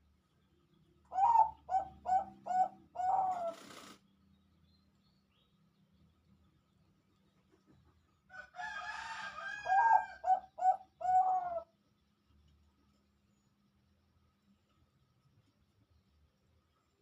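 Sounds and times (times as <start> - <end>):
dove cooing song: 1.1 - 4.0, 9.5 - 11.7.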